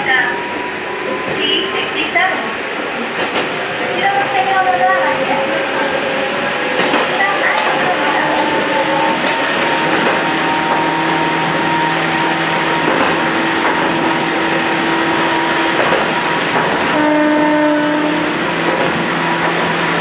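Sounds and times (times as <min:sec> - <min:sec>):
electric train rolling on track: 0:00.0 - 0:20.0
train horn note: 0:16.9 - 0:18.5.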